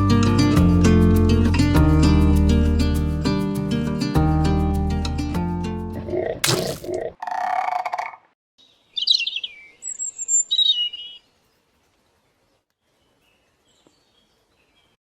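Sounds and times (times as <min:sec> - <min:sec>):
songbird chirping and trilling: 0:07.2 - 0:15.0.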